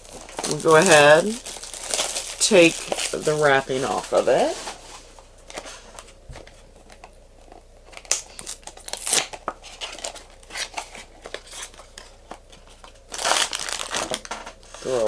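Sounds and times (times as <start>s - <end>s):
plastic wrapping crinkling and ripping: 0.0s - 4.6s, 7.8s - 15.0s.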